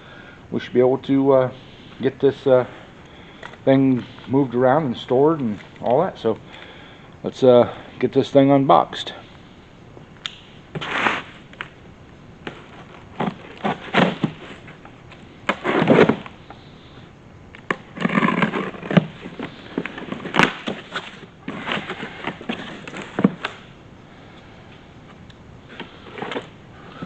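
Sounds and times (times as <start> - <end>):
packaging rustling: 17.6 - 23.7.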